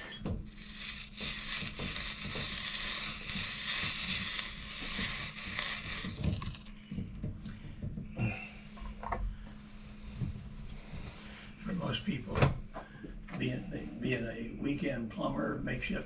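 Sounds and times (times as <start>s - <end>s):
hot pipe hissing sizzle: 0.0s - 6.8s.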